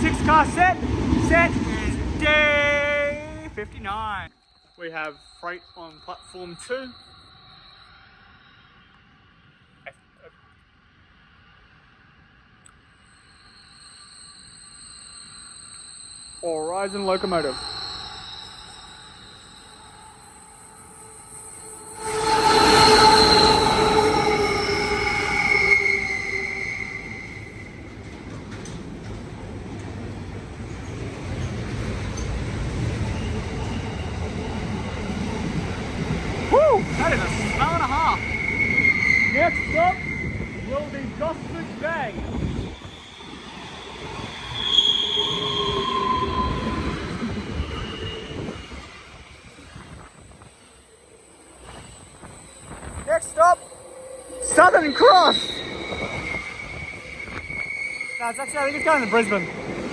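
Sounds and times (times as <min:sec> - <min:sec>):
freight train passing: 0:00.0 - 0:04.3, 0:08.4 - 0:59.9
metallic wheel squeal: 0:12.9 - 0:59.9.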